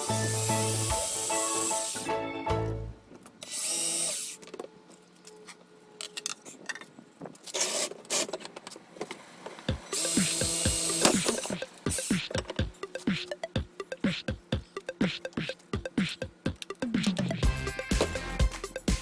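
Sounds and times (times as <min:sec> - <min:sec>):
power tool cutting wood: 0:00.0 - 0:02.1, 0:03.5 - 0:04.4, 0:09.9 - 0:11.5
background music: 0:00.0 - 0:03.1, 0:09.7 - 0:19.0.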